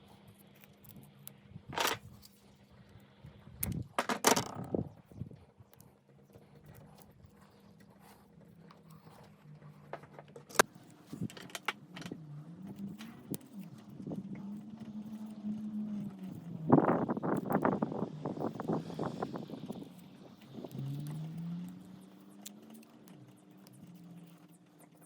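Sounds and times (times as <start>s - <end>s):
faint engine hum: 7.5s - 25.0s.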